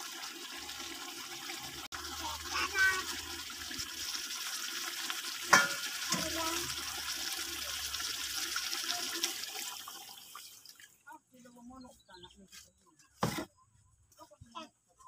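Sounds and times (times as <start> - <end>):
coconut milk pouring: 0.0 - 11.0
paste sizzling in a wok: 1.6 - 10.1.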